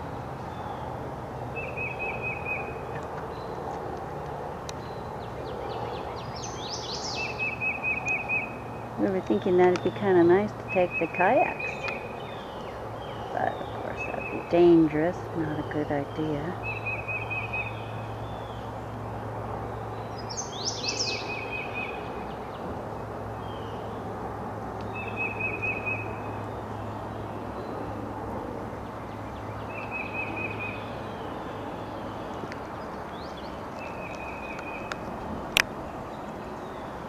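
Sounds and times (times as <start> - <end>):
songbird trilling: 1.6 - 3.5, 4.8 - 18.8, 20.0 - 22.6.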